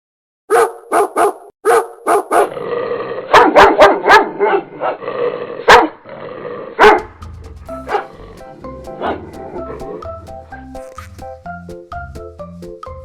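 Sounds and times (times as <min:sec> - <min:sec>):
dog barking: 0:00.5 - 0:02.6, 0:03.3 - 0:05.0, 0:05.6 - 0:06.0, 0:06.8 - 0:07.1, 0:07.7 - 0:08.2, 0:09.0 - 0:09.4.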